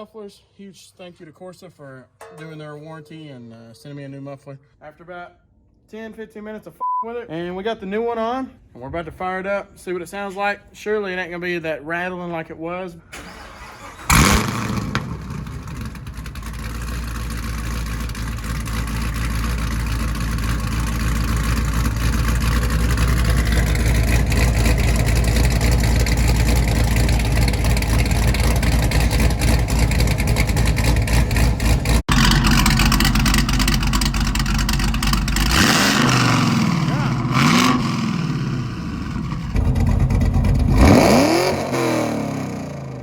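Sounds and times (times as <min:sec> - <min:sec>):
car engine deep rumble: 0:14.1 - 0:42.8.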